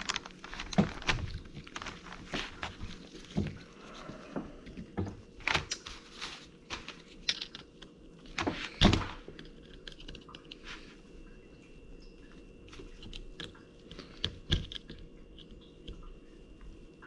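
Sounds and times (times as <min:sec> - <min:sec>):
clicks and taps handling parts: 0:06.7 - 0:10.6.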